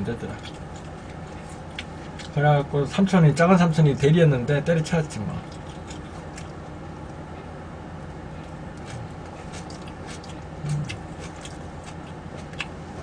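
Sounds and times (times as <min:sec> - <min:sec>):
low background hum: 0:00.0 - 0:13.0
person humming mm: 0:10.6 - 0:11.0.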